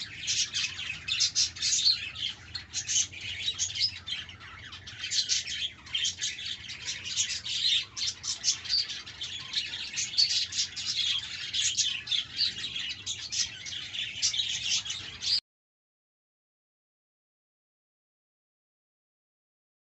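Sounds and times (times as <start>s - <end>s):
budgerigars chirping: 0.0s - 15.4s.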